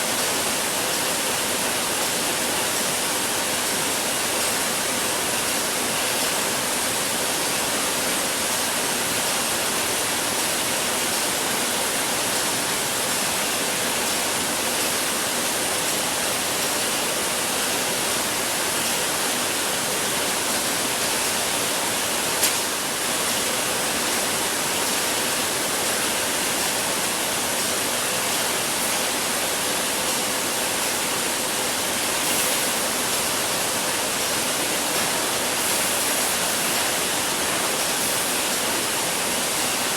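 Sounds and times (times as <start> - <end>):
production line machinery whirring: 31.6 - 39.9.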